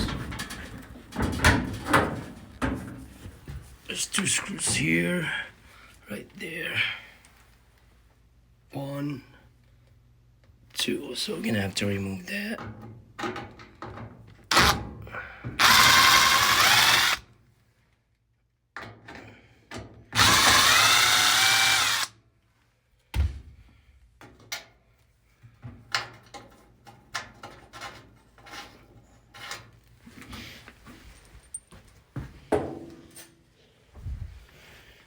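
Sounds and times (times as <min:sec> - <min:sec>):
power drill running: 0:15.6 - 0:17.2, 0:20.2 - 0:22.1.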